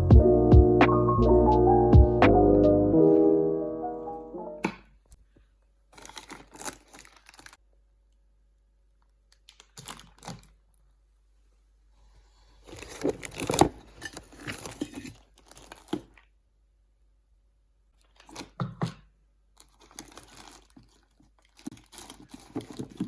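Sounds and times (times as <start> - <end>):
crinkling and tearing: 5.9 - 7.6, 9.0 - 10.8, 12.6 - 16.3, 19.6 - 23.0.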